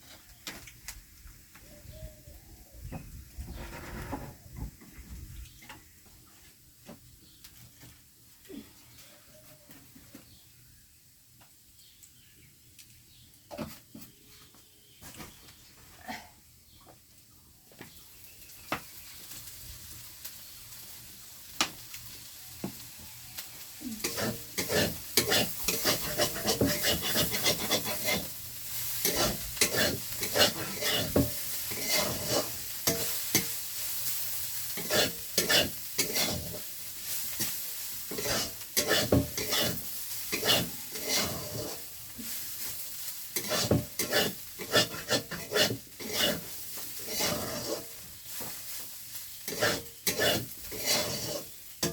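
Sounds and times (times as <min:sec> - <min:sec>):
utensil scraping a pan: 0:03.4 - 0:04.5, 0:24.0 - 0:33.6, 0:34.6 - 0:51.9
food sizzling in a pan: 0:18.2 - 0:51.9.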